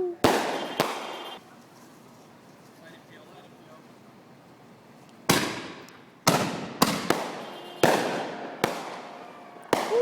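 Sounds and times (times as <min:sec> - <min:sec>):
fireworks bangs with echo: 0:00.2 - 0:01.4, 0:05.3 - 0:10.0.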